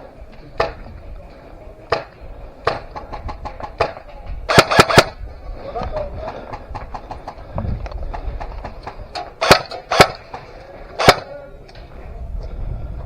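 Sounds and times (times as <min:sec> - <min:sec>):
faint airsoft gunshots: 0:01.9 - 0:05.2, 0:09.4 - 0:10.4, 0:11.0 - 0:11.3
loud airsoft gunshots: 0:01.9 - 0:05.2, 0:09.4 - 0:10.4, 0:11.0 - 0:11.3.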